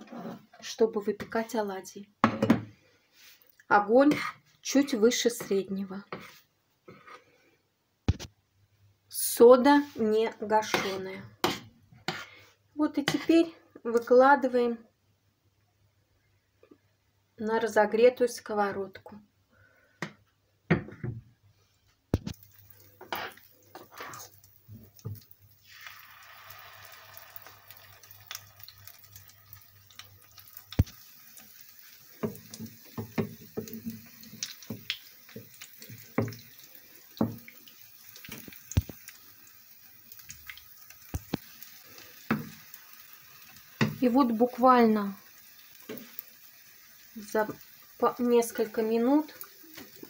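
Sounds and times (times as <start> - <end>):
batter sizzling in hot oil: 22.2 - 50.0.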